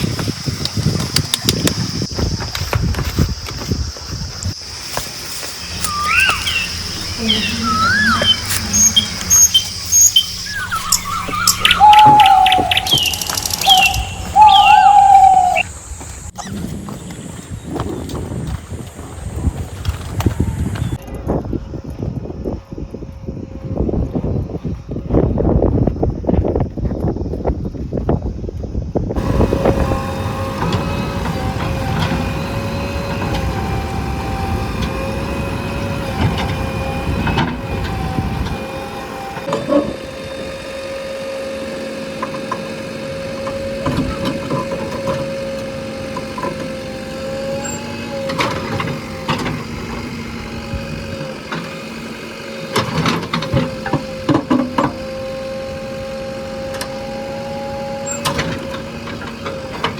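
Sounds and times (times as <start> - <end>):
backhoe diesel engine whining: 4.5 - 21.0, 29.2 - 59.9.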